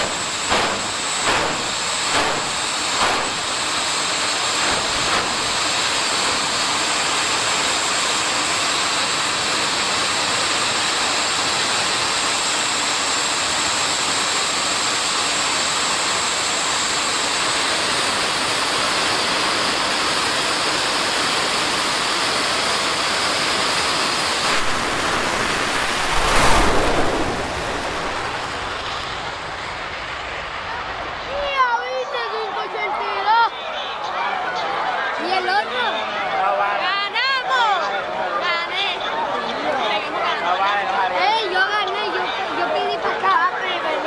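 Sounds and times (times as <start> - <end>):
jet turbine engine hissing and whining: 0.0 - 33.6.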